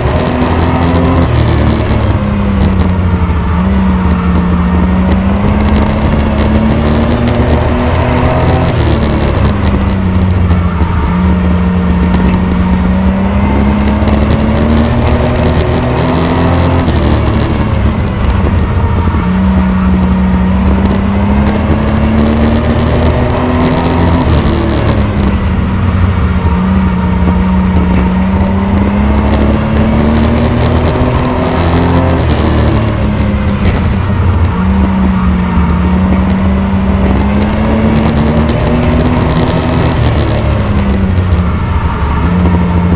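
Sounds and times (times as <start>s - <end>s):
race truck engine revving: 0.0s - 42.9s.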